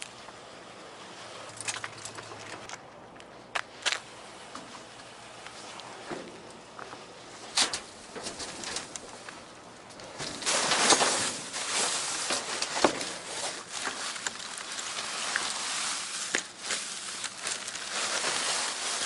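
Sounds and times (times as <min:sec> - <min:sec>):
rummaging through trash: 0:07.5 - 0:19.0.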